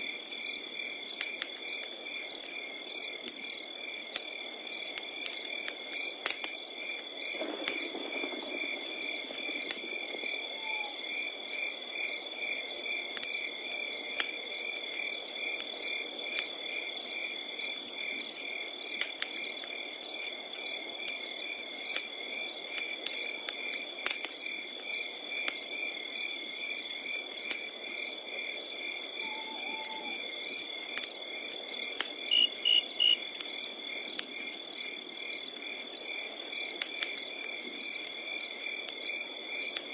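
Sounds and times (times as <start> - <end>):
campfire crackling: 0.0 - 39.9
crickets chirping: 0.0 - 39.9.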